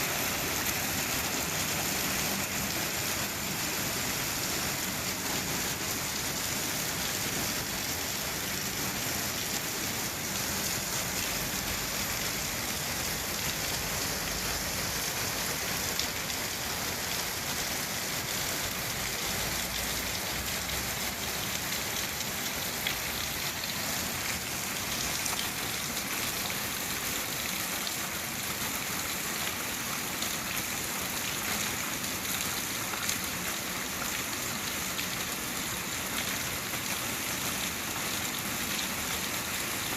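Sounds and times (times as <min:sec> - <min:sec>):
rain hissing: 0:00.0 - 0:27.4
raindrops ticking on a surface: 0:10.3 - 0:17.4, 0:18.2 - 0:39.9.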